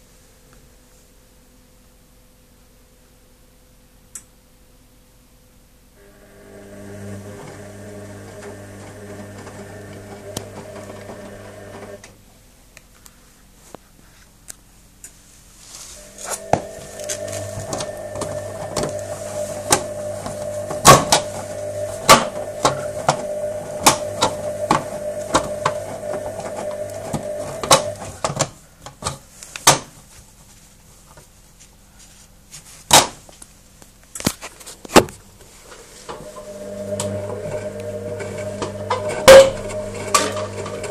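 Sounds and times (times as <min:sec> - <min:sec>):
washing machine drum motor humming: 0:06.0 - 0:12.1, 0:16.0 - 0:28.4, 0:36.0 - 0:40.9.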